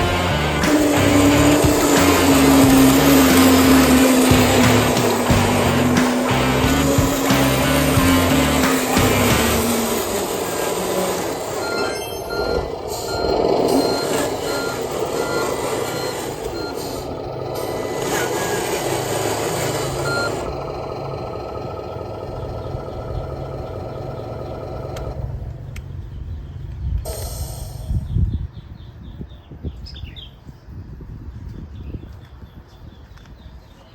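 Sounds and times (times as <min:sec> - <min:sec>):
truck reversing beeper: 0:00.0 - 0:25.6, 0:27.1 - 0:28.2
truck engine running: 0:00.0 - 0:27.9.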